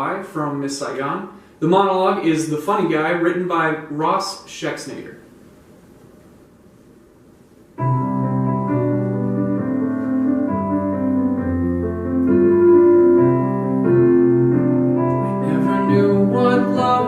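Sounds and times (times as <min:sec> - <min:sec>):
piano playing slow chords: 0:07.8 - 0:17.0.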